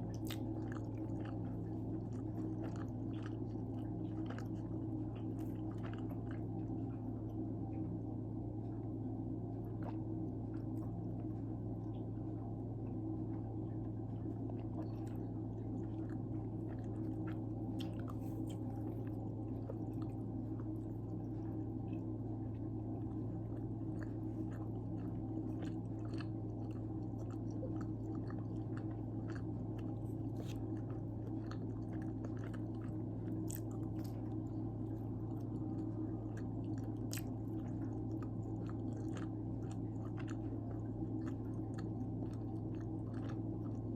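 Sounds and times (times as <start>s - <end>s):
person chewing pizza: 0.0s - 43.9s
steady low hum: 0.0s - 43.9s
crunchy crust clicks: 14.1s - 43.9s.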